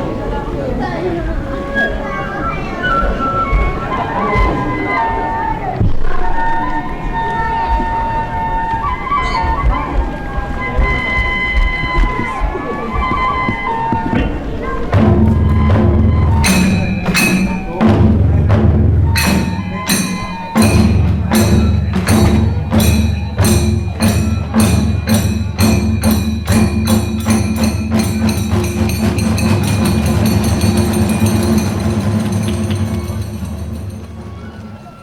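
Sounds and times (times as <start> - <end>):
drum beat: 9.6 - 34.4
hand cymbal clashes: 16.3 - 34.3.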